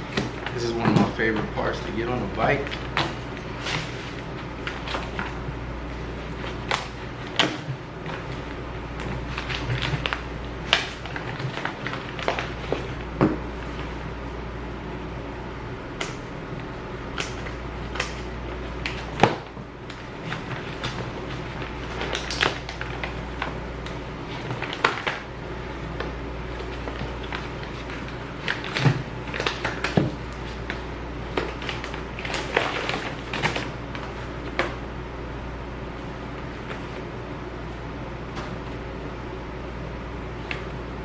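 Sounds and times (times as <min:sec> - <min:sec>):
steady low hum: 0:00.0 - 0:41.0
packaging rustling and tapping: 0:06.4 - 0:13.4, 0:26.0 - 0:34.7.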